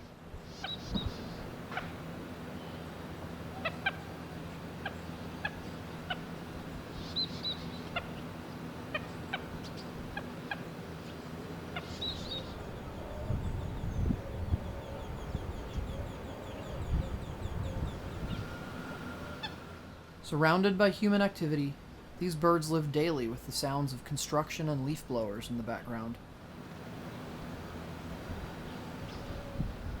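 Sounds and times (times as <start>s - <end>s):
birds clucking: 0.0s - 19.9s
low mechanical hum: 0.0s - 30.0s
higher bird chirps: 3.6s - 20.0s.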